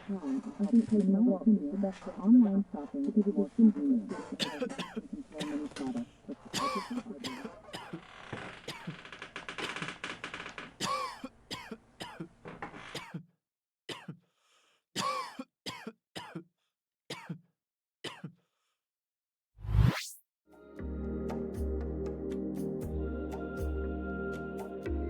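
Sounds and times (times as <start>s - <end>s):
background noise: 0.0s - 13.2s
person coughing: 4.1s - 5.8s, 6.5s - 8.0s, 10.8s - 12.3s, 13.0s - 13.3s, 13.9s - 14.2s, 15.0s - 16.5s, 17.1s - 18.4s
throat clearing: 4.1s - 8.0s, 13.0s - 13.3s, 13.9s - 14.2s, 15.0s - 16.5s, 17.1s - 17.5s, 18.1s - 18.4s.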